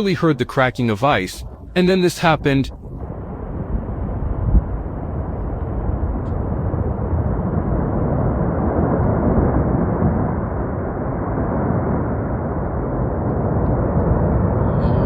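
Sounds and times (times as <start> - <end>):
avalanche low rumble: 0.0 - 15.0.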